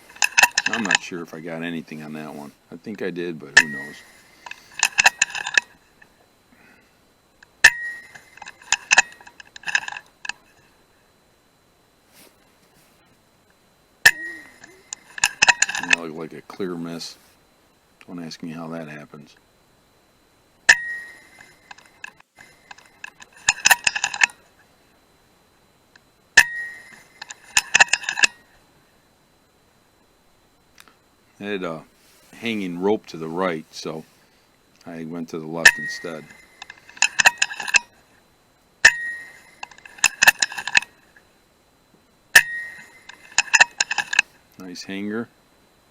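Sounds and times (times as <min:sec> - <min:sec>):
clinking clicks: 0:03.6 - 0:05.8, 0:07.4 - 0:10.5, 0:14.0 - 0:16.6, 0:20.7 - 0:24.4, 0:26.4 - 0:28.4, 0:35.6 - 0:37.9, 0:38.8 - 0:41.0, 0:42.4 - 0:44.7.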